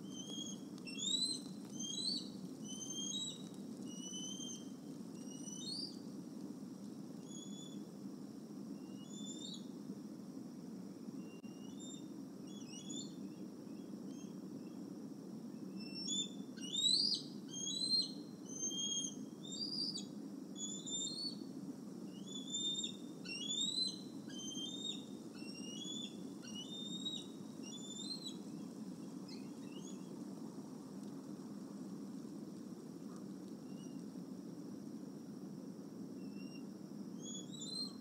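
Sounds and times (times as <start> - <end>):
birds chirping whistles: 0.0 - 6.0, 8.9 - 9.6, 11.3 - 13.2, 15.8 - 21.4, 22.1 - 30.1, 37.2 - 38.0.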